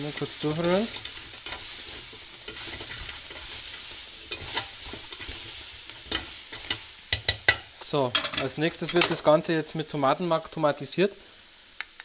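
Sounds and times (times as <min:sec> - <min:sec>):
bones and vegetables sizzling in pot: 0:00.0 - 0:12.0
spoon knocking pot: 0:06.7 - 0:08.4.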